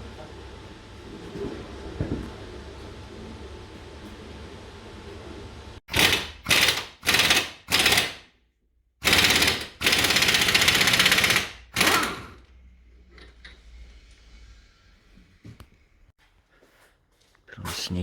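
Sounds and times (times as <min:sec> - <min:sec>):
impact wrench hammering: 0:05.9 - 0:08.2, 0:09.0 - 0:12.4.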